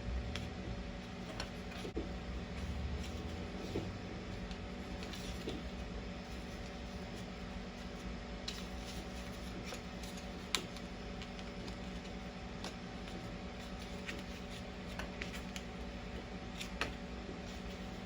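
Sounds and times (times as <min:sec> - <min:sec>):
microwave oven humming: 0:00.0 - 0:18.0.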